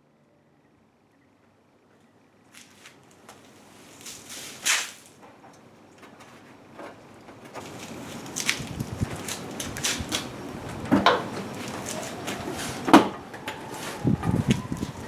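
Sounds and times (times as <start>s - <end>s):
scrape: 3.6s - 5.1s
parts knocking and clicking: 9.3s - 13.7s.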